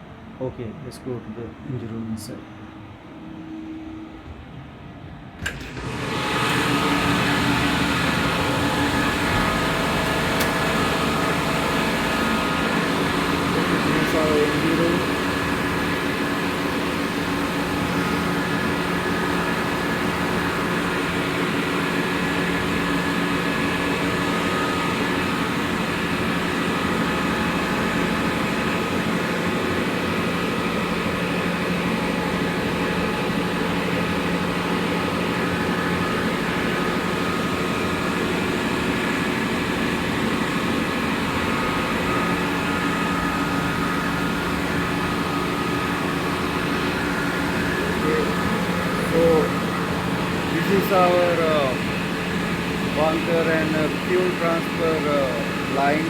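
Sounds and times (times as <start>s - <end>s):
engine room machinery drone: 0.0s - 56.0s.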